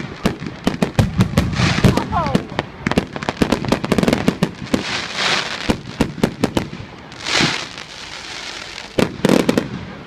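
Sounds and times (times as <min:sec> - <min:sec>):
fireworks bangs: 0:00.0 - 0:10.0
fireworks hissing: 0:00.0 - 0:10.0.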